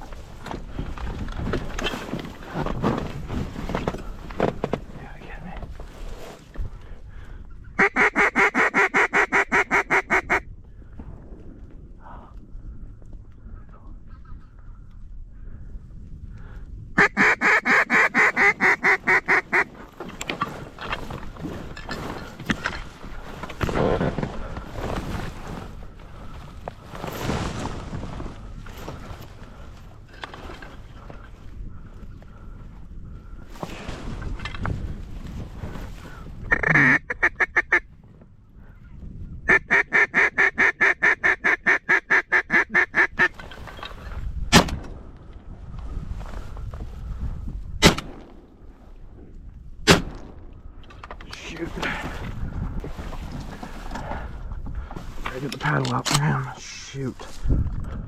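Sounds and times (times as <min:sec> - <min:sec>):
duck quacking: 0:07.8 - 0:10.4, 0:17.0 - 0:19.7, 0:36.5 - 0:37.8, 0:39.5 - 0:43.3.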